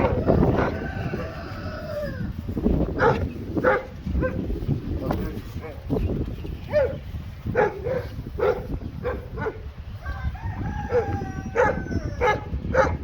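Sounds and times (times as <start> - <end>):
rooster crowing: 0.0 - 2.4, 10.0 - 12.2.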